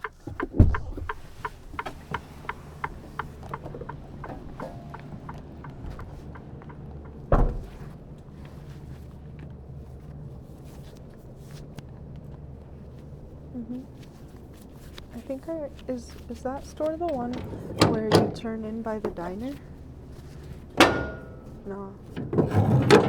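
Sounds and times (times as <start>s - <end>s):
heavy thump: 0.4s - 1.9s, 7.0s - 8.0s
diesel truck engine idling: 0.6s - 23.0s.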